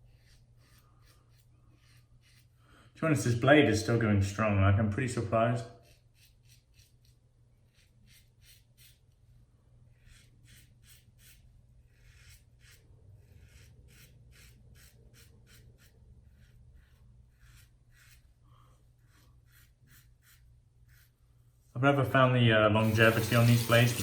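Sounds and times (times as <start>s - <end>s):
razor scraping stubble: 0.0s - 2.6s, 5.8s - 9.2s, 10.0s - 18.4s, 19.0s - 21.2s, 22.8s - 24.0s.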